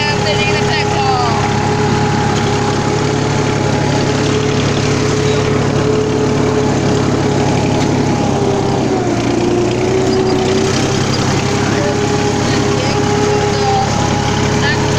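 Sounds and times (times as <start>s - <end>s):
tractor engine droning: 0.0s - 14.9s.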